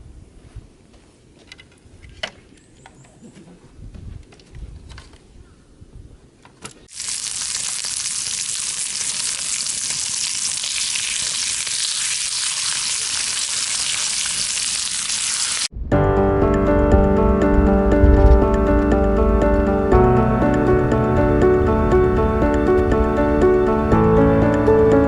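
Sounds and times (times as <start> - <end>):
food sizzling in a pan: 6.9 - 15.7.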